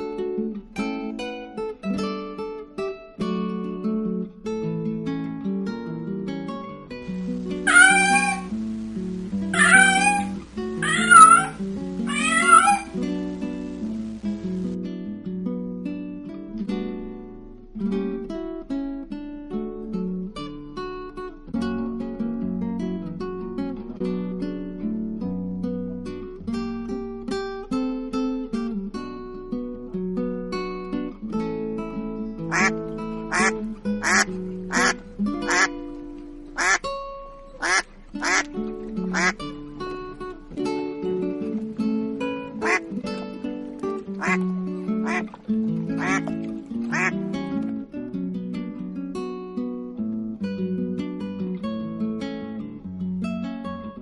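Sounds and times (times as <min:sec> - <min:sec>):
acoustic guitar music: 0:00.0 - 0:54.0
duck quacking: 0:07.1 - 0:14.4, 0:32.5 - 0:35.7, 0:36.6 - 0:36.9, 0:37.6 - 0:38.5, 0:39.1 - 0:39.4, 0:42.6 - 0:42.8, 0:44.2 - 0:44.4, 0:45.0 - 0:45.3, 0:46.0 - 0:46.3, 0:46.9 - 0:47.2
cat meowing: 0:07.5 - 0:08.6, 0:09.4 - 0:13.1, 0:36.6 - 0:36.8, 0:37.6 - 0:38.4.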